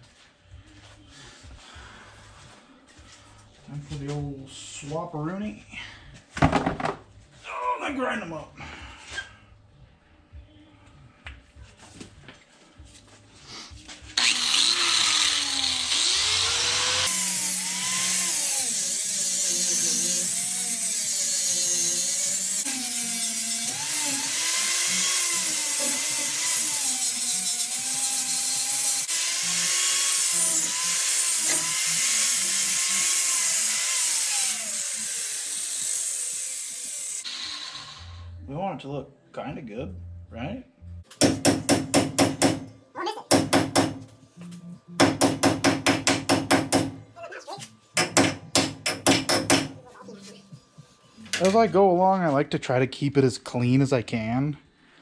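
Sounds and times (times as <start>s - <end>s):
angle grinder grinding steel: 14.2s - 38.3s.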